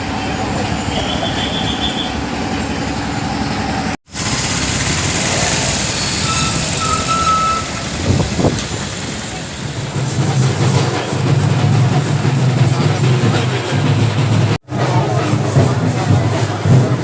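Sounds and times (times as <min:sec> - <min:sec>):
busy street traffic: 0:00.0 - 0:17.0
short electronic beeps: 0:06.0 - 0:07.8.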